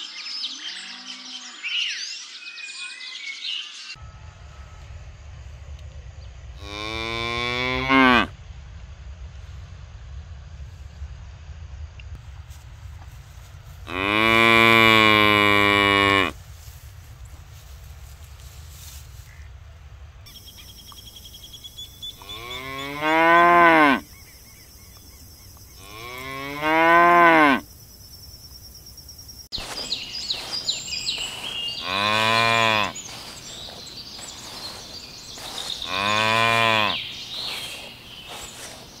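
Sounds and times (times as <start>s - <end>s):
cattle mooing: 6.6s - 8.3s, 13.9s - 16.4s, 22.2s - 24.0s, 25.8s - 27.6s, 31.2s - 33.4s, 35.4s - 37.8s.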